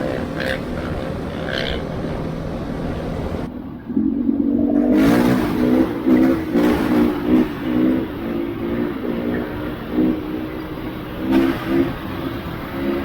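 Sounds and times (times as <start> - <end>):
engine revving: 0.0 - 13.0
motor engine running steadily: 0.0 - 13.0.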